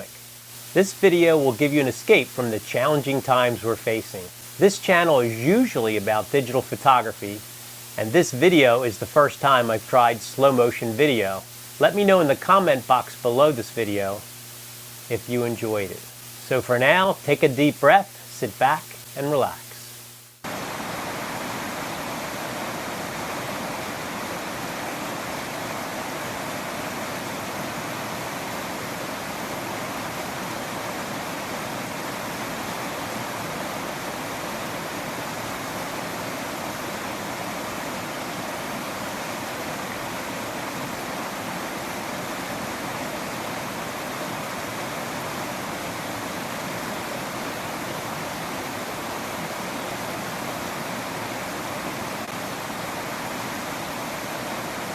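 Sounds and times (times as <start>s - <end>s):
waterfall rushing: 20.5s - 54.9s.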